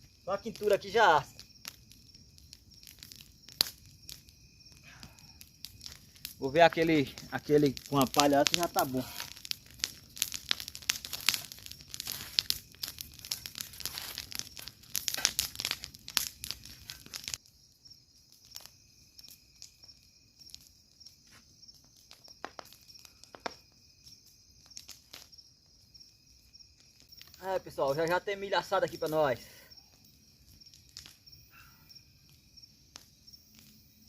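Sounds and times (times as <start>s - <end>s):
night insects chirping: 0.0s - 34.0s
dry corn husks rustling: 5.8s - 17.3s.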